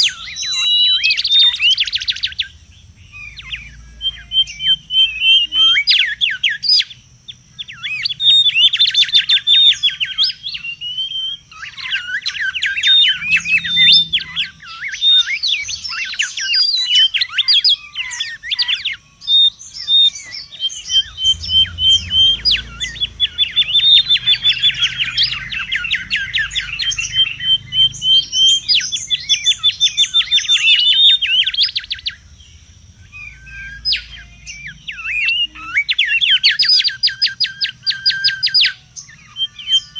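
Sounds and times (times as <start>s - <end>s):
birds singing whistled notes: 0.0s - 39.9s.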